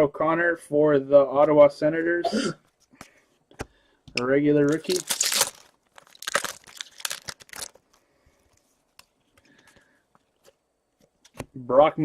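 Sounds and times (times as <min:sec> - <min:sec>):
foil wrapper crinkling and tearing: 0:04.6 - 0:08.1.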